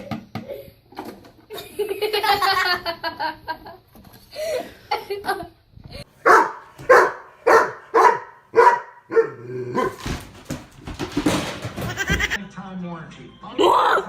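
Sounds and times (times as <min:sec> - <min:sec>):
dog barking: 0:06.2 - 0:10.0.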